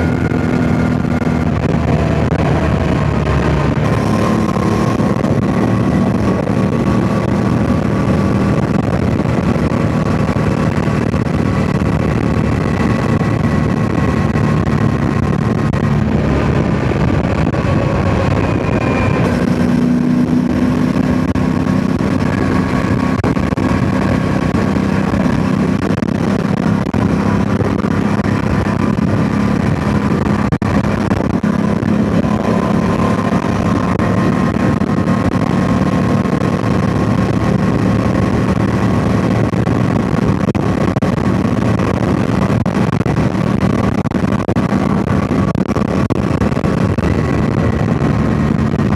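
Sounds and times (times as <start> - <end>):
motorcycle engine running: 0.0 - 48.9
wind buffeting microphone: 0.0 - 48.9.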